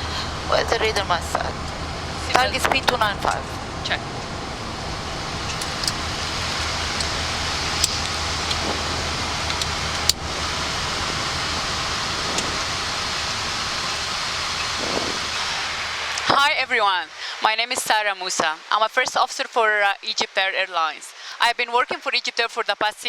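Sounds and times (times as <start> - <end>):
low hum: 0.0 - 16.9
airflow and engine rushing: 0.0 - 17.4.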